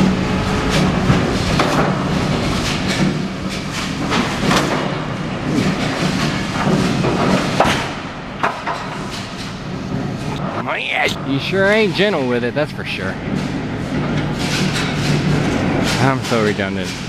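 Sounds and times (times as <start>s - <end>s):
freight clanking and knocking: 0.8s - 10.1s.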